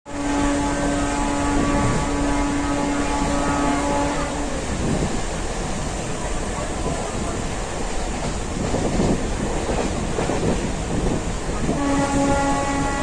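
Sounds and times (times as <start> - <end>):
train rushing in rain: 0.1 - 13.0.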